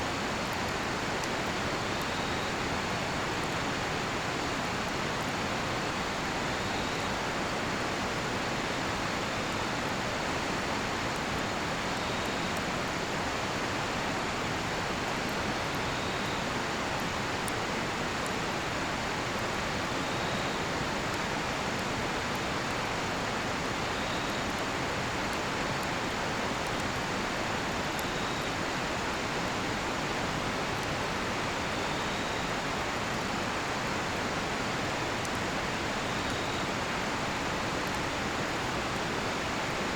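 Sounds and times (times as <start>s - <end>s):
river rushing: 0.0s - 39.9s
cricket chirp: 31.7s - 32.6s, 36.0s - 36.7s.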